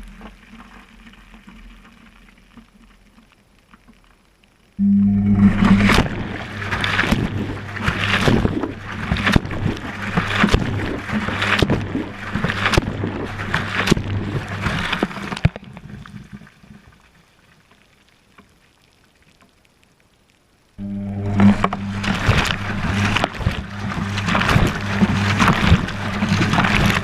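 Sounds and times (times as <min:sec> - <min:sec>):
washing machine motor hum: 0:04.8 - 0:15.0, 0:20.8 - 0:27.0
water and laundry sloshing in drum: 0:05.4 - 0:16.9, 0:20.8 - 0:27.0.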